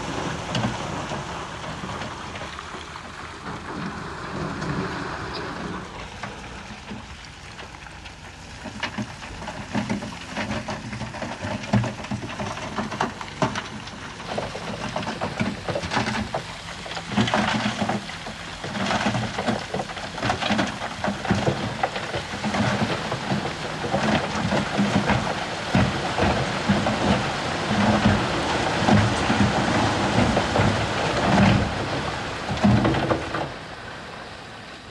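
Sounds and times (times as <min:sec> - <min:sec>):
clanks and crunches of tracks and stone: 0:00.0 - 0:33.6
bulldozer diesel engine running: 0:07.7 - 0:34.2.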